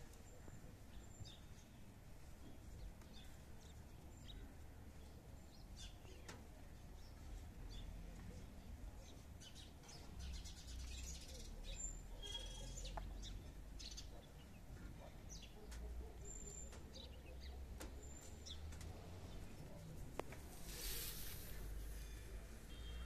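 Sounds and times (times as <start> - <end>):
small birds chirping: 0.1 - 23.0.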